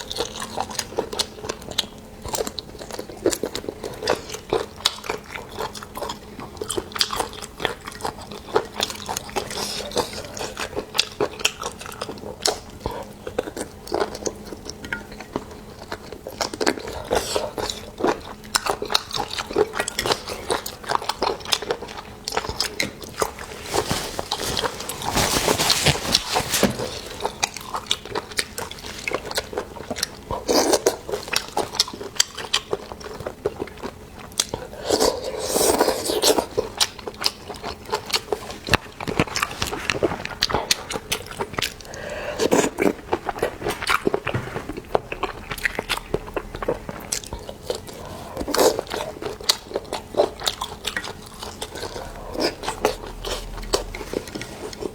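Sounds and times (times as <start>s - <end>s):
wet chewing and biting: 0.0s - 54.9s
crunching: 18.9s - 54.9s.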